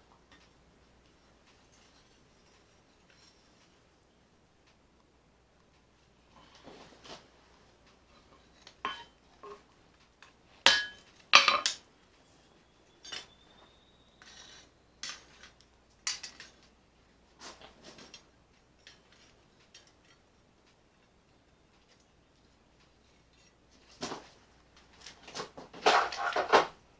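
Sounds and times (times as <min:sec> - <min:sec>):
metal tools clanking: 0:08.2 - 0:09.7, 0:10.6 - 0:16.7
faint ringing tone: 0:12.2 - 0:15.4.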